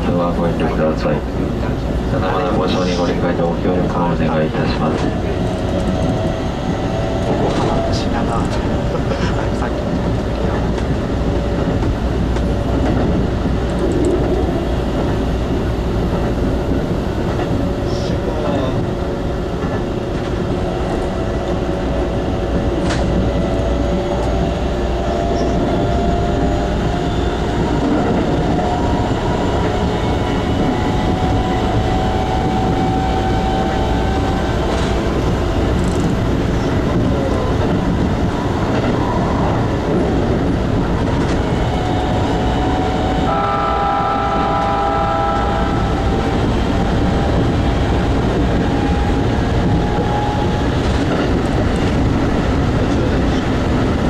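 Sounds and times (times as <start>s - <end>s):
wheels rumbling on rail: 0.0s - 54.0s
train motor whine: 41.2s - 50.0s.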